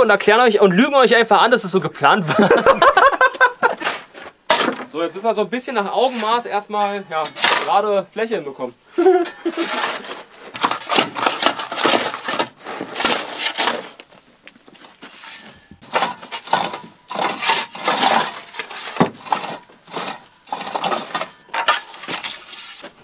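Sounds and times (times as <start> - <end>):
hand tools scraping soil and stone: 5.8 - 8.0, 8.6 - 23.0.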